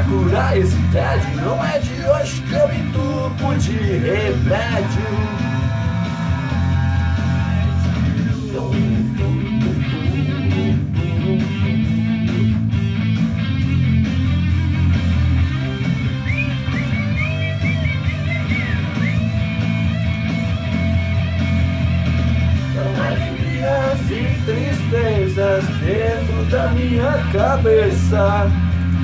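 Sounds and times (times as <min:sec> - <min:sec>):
rock song: 0:00.0 - 0:29.0
lead guitar bending notes: 0:09.0 - 0:26.6.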